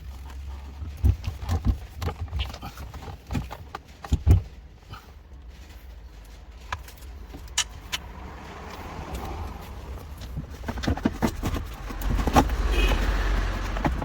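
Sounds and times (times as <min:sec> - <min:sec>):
sharp clicks: 0:06.6 - 0:09.4.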